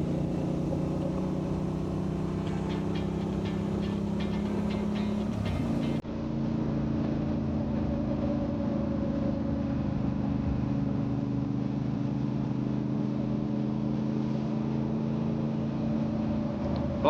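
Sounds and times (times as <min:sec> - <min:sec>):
motorcycle engine cruising: 0:00.0 - 0:06.0
wind and road noise: 0:00.0 - 0:06.0.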